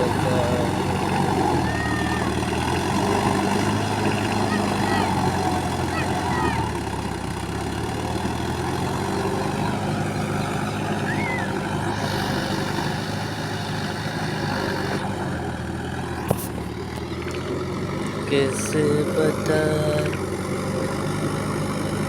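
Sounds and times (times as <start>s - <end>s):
heavy engine running: 0.0s - 22.0s.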